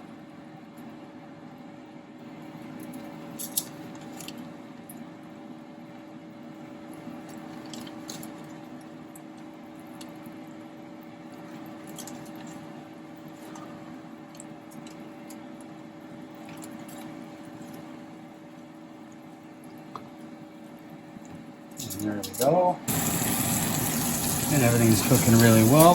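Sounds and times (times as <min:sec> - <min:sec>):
chicken sizzling in oil: 0:22.9 - 0:25.9.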